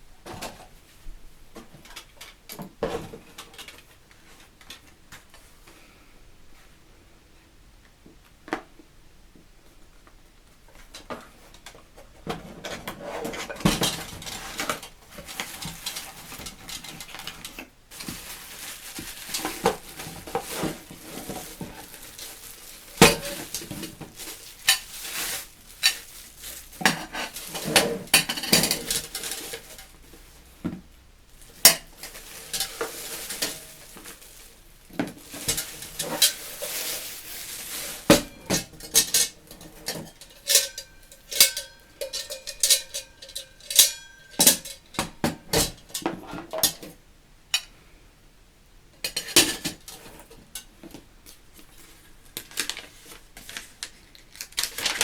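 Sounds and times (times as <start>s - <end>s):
metal parts clinking and scraping: 12.7s - 30.0s, 31.5s - 34.6s, 35.2s - 45.0s.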